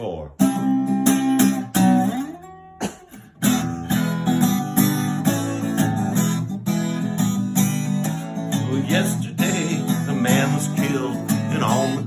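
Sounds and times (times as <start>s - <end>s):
acoustic guitar strumming: 0.4s - 12.0s.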